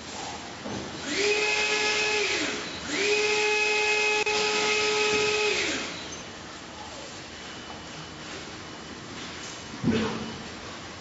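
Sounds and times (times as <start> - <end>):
small electric motor whining: 1.0 - 6.0.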